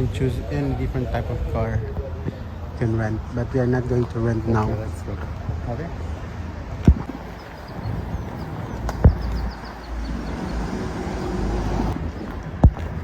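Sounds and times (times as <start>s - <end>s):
traffic rumble: 0.0s - 13.0s
faint bird chirps: 7.1s - 12.3s.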